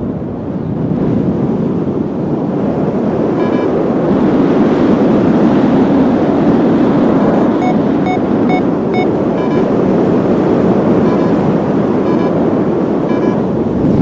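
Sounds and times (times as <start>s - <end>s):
wind rushing over microphone: 0.0s - 14.0s
short electronic beep: 3.4s - 3.7s, 7.6s - 9.7s, 11.0s - 11.4s, 12.0s - 12.4s, 13.1s - 13.4s.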